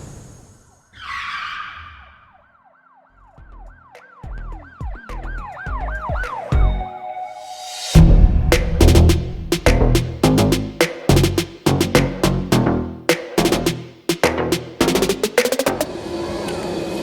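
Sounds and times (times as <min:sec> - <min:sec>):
siren-like yelp sweeping: 0:00.9 - 0:02.8
whoosh noise burst: 0:07.5 - 0:11.7
low bass hits: 0:08.0 - 0:15.8.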